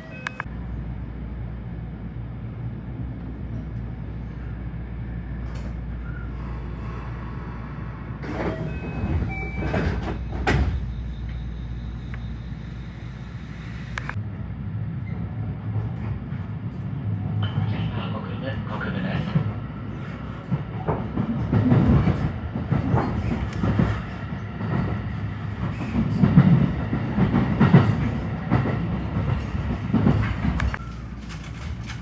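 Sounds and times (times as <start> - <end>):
electric train rumbling: 0.0 - 32.0.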